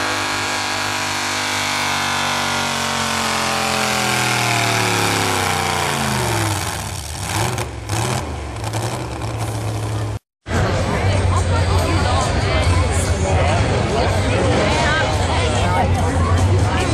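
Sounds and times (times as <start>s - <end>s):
truck engine winding down: 0.0s - 11.2s
truck engine idling: 0.0s - 16.9s.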